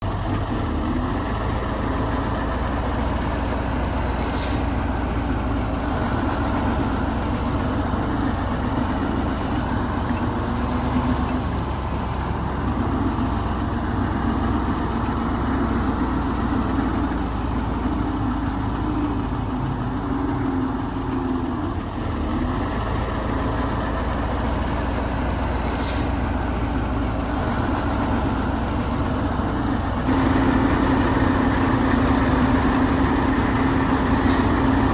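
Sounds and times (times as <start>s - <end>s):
diesel machinery engine drone: 0.0s - 34.9s
high-pitched hisses: 3.6s - 5.0s, 25.0s - 26.4s, 33.2s - 34.9s.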